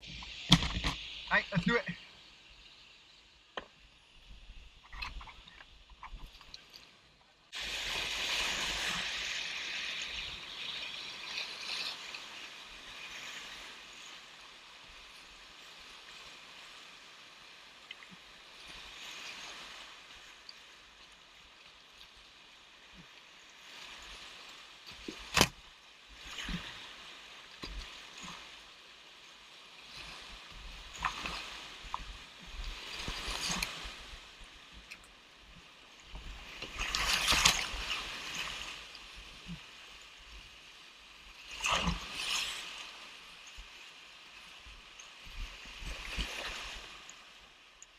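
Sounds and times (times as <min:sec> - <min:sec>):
kayak paddle splashing: 0:07.5 - 0:40.4.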